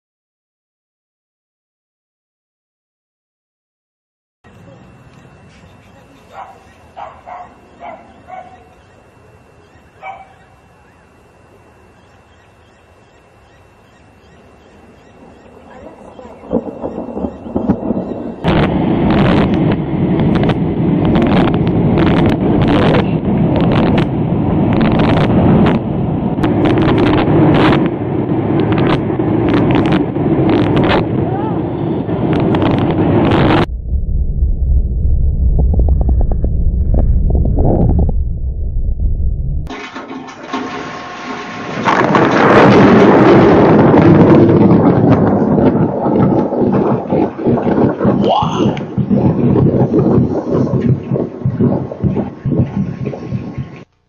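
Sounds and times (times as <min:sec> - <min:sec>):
sharp crackles and ticks: 0:04.5 - 0:06.3, 0:14.6 - 0:23.0, 0:28.6 - 0:31.0
thunder rumbling with crackling: 0:04.5 - 0:53.9.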